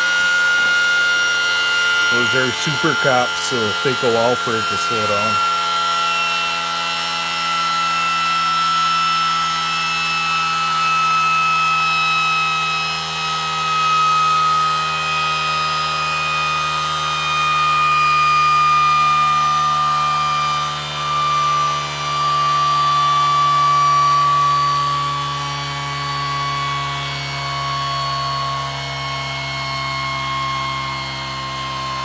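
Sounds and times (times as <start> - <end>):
motor whining while coasting down: 0.0 - 32.0.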